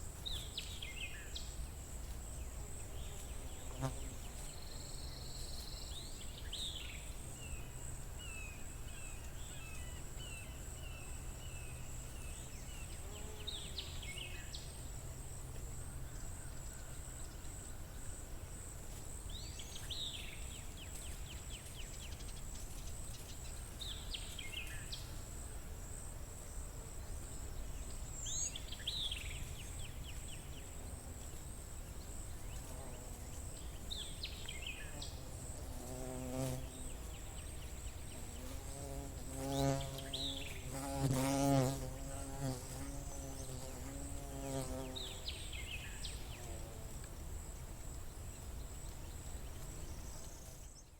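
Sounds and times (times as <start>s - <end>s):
songbird singing: 0.2s - 1.6s, 2.3s - 15.0s, 19.3s - 25.2s, 26.5s - 50.9s.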